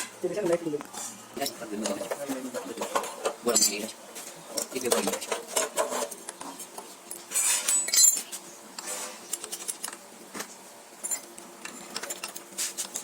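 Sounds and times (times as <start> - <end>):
metal parts and tools clinking: 7.2 - 10.0, 11.0 - 12.6.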